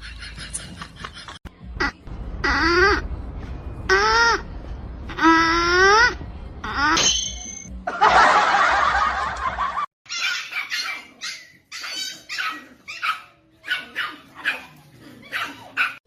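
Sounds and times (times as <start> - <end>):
dog barking: 10.1 - 16.0.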